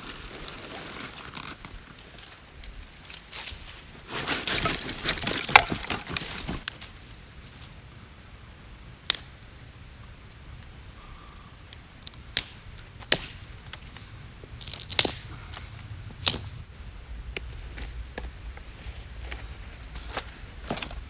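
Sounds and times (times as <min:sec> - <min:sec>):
dry wood snapping: 0:04.6 - 0:07.0, 0:09.0 - 0:09.3, 0:11.7 - 0:16.5.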